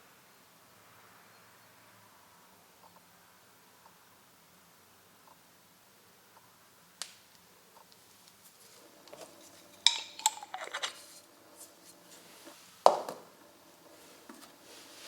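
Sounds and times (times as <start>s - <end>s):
metal parts clinking and rattling: 9.6s - 11.2s.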